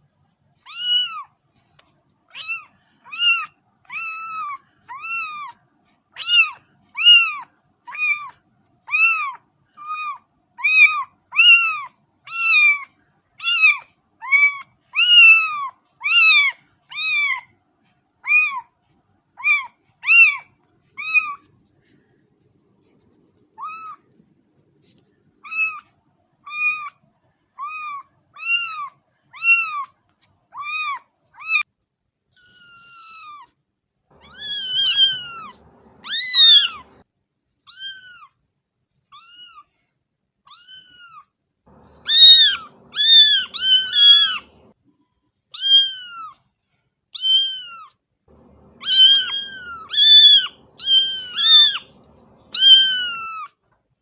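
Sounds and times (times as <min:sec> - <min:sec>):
cat meowing: 0:00.7 - 0:01.3, 0:02.3 - 0:05.6, 0:06.2 - 0:17.5, 0:18.2 - 0:18.7, 0:19.4 - 0:21.5, 0:23.6 - 0:24.2, 0:25.4 - 0:25.9, 0:26.5 - 0:27.0, 0:27.6 - 0:29.9, 0:30.5 - 0:31.6, 0:32.4 - 0:33.5, 0:34.2 - 0:37.0, 0:37.6 - 0:38.4, 0:39.2 - 0:39.7, 0:40.5 - 0:44.7, 0:45.6 - 0:46.4, 0:47.2 - 0:53.5.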